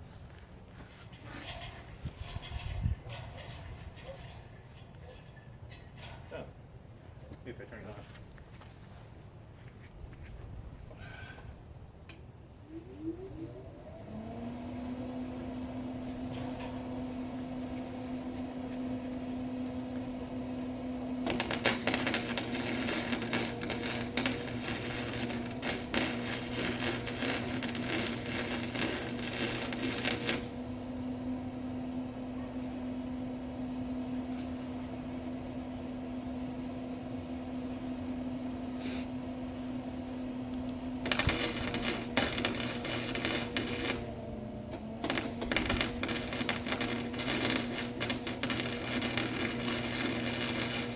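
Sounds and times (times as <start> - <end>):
steady low hum: 0.0 - 50.9
arc welding crackling: 12.9 - 50.9.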